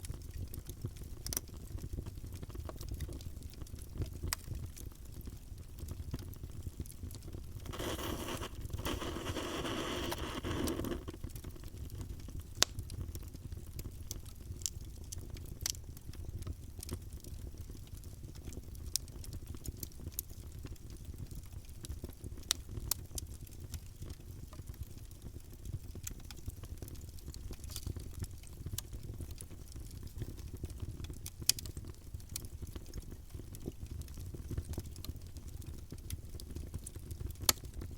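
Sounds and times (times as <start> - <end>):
campfire crackling and popping: 0.0 - 37.9
low rumble of flames: 0.0 - 37.9
rushing hiss: 7.7 - 11.1.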